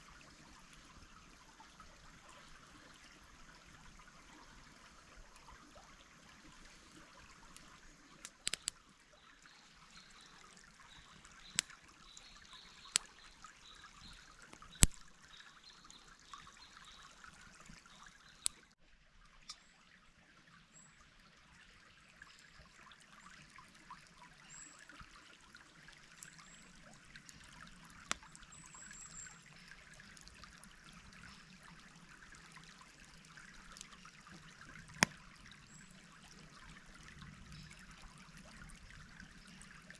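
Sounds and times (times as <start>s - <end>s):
stream trickling over stones: 0.0s - 39.9s
sharp clicks or snaps: 7.6s - 8.8s, 14.5s - 15.1s.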